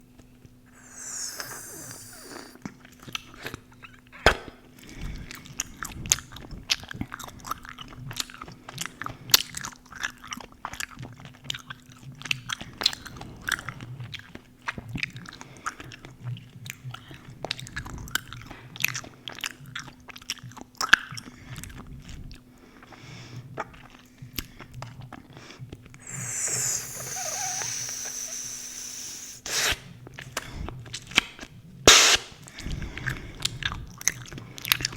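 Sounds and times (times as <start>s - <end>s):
gum chewing smacks: 0.5s - 3.6s
hissy noise: 0.7s - 2.6s, 26.0s - 29.8s.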